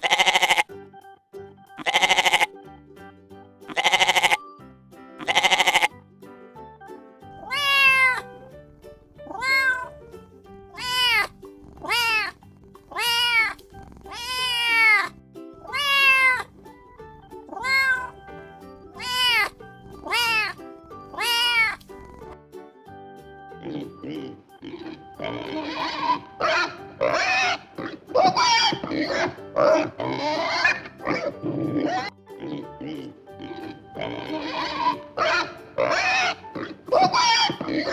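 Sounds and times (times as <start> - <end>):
cat meowing: 0.0 - 0.6, 3.7 - 4.4, 5.2 - 5.9, 7.4 - 8.3, 9.2 - 10.0, 10.8 - 16.5, 17.5 - 18.2, 19.0 - 22.3
short bleat: 0.0 - 0.7, 1.8 - 2.5, 3.7 - 4.4, 5.2 - 5.9, 12.9 - 16.5, 25.4 - 27.6
soft background music: 0.0 - 37.9.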